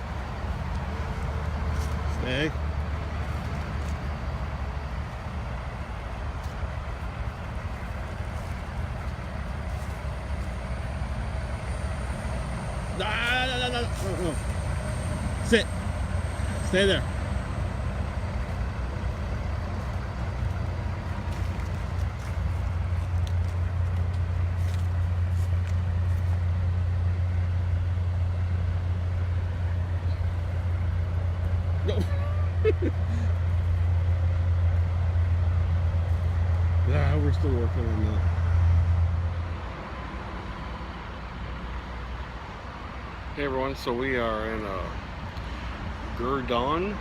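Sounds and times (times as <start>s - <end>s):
truck engines idling: 0.0s - 47.0s.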